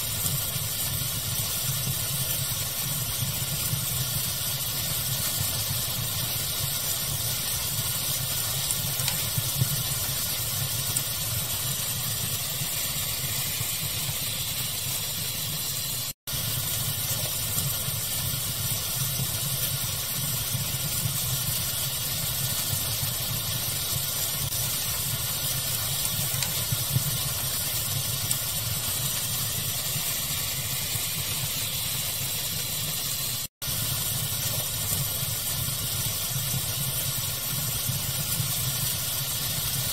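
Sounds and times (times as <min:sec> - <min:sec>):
steady hiss: 0:00.0 - 0:39.9
wood fire crackling: 0:00.0 - 0:39.9.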